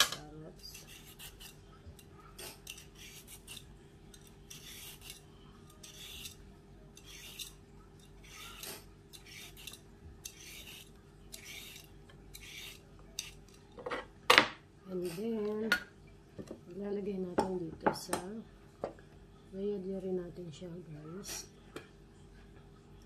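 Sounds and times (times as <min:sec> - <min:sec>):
peeler scraping carrot: 0:00.6 - 0:13.6.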